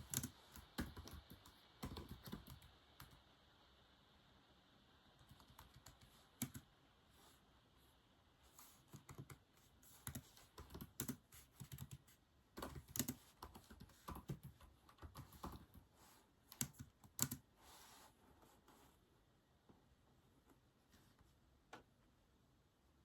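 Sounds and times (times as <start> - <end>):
keyboard keys clicking: 0.0 - 3.2, 10.0 - 12.0, 12.6 - 15.8, 16.5 - 17.4.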